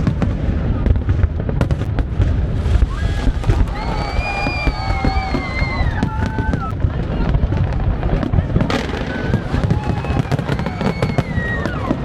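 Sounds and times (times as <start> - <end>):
fireworks cracks and bangs: 0.0 - 12.0
people calling or cheering: 2.8 - 7.3, 8.6 - 12.0.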